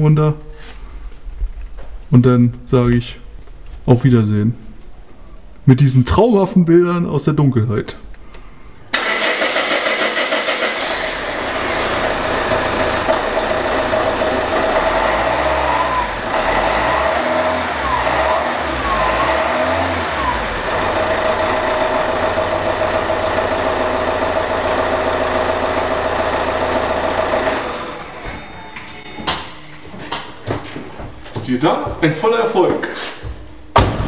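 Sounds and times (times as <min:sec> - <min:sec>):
car engine idling and revving: 0:09.0 - 0:28.3.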